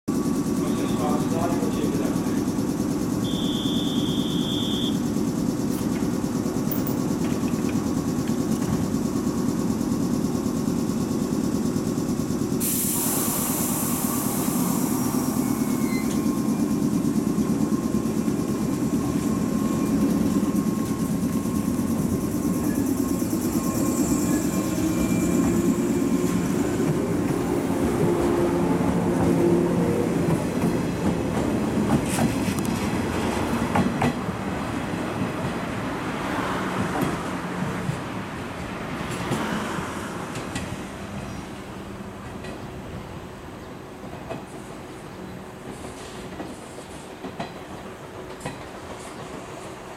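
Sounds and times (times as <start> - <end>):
train motors humming: 0.1 - 49.9
short high beep: 3.2 - 5.0
compressed air hiss: 12.6 - 15.8.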